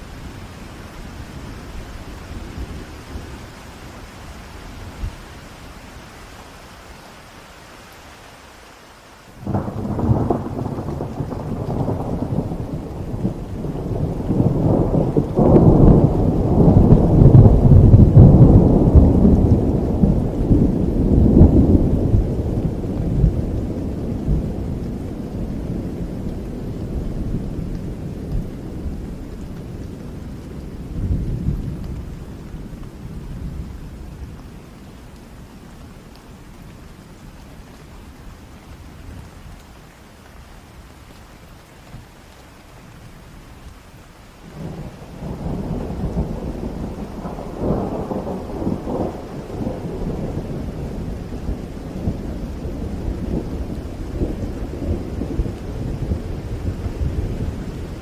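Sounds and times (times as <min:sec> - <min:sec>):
steady rain: 0:00.0 - 0:58.0
rolling thunder: 0:09.4 - 0:34.4, 0:44.5 - 0:58.0.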